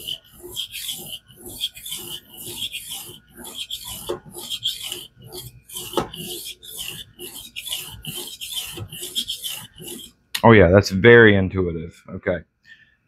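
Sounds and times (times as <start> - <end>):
knife scraping on whetstone: 0.0 - 10.2.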